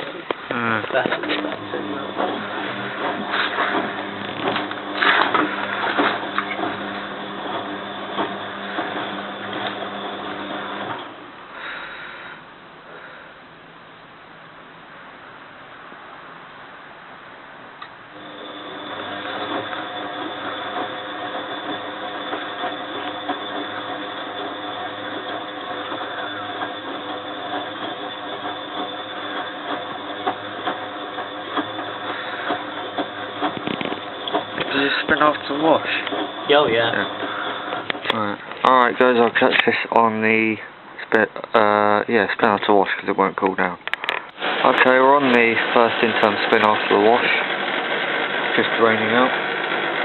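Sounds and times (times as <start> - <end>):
washing machine motor humming: 0.0 - 11.4, 18.1 - 39.7, 44.3 - 50.0
washing machine drum turning: 1.0 - 11.1, 18.2 - 38.1.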